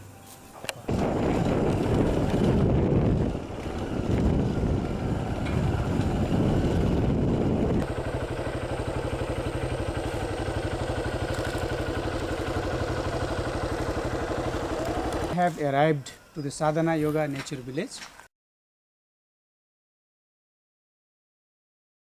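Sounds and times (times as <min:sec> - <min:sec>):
loud rough rushing noise: 0:00.9 - 0:10.8
motorcycle engine idling: 0:00.9 - 0:15.4.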